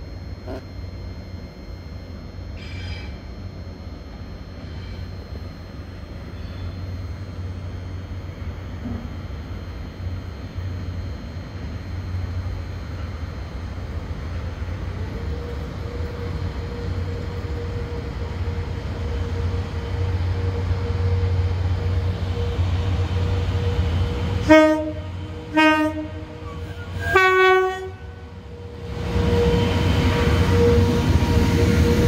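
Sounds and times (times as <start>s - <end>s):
diesel train engine rumble: 0.0s - 32.0s
thin steady whine: 0.0s - 32.0s
train horn blasts: 20.3s - 32.0s.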